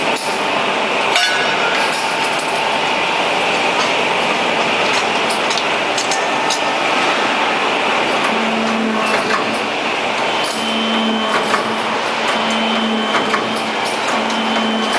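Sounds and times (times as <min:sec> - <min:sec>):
low machine hum: 0:00.7 - 0:14.9
machine clicks and knocks: 0:08.1 - 0:14.9.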